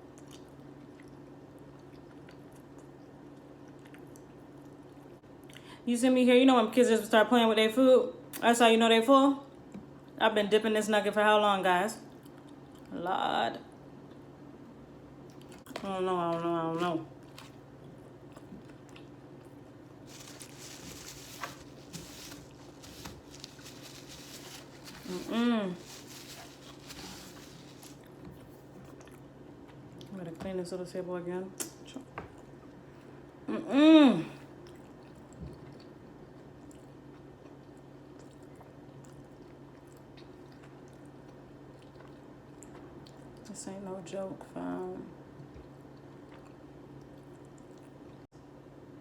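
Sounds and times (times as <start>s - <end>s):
low electrical hum: 0.0s - 49.0s
chewing with wet mouth clicks: 0.1s - 5.6s, 12.1s - 12.9s, 17.2s - 19.6s, 28.0s - 30.1s, 34.6s - 43.4s, 45.4s - 48.2s
steady low hum: 13.6s - 37.9s
faint rustling: 20.1s - 28.1s.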